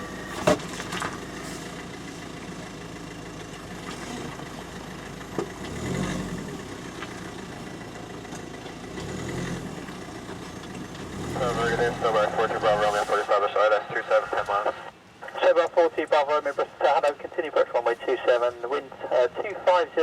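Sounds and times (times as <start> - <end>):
aircraft engines droning: 11.4 - 20.0.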